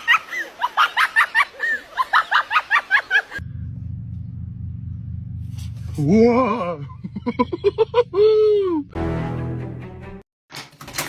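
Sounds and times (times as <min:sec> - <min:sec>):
people laughing: 0:00.0 - 0:03.4, 0:06.8 - 0:08.8
low steady hum: 0:03.3 - 0:08.8.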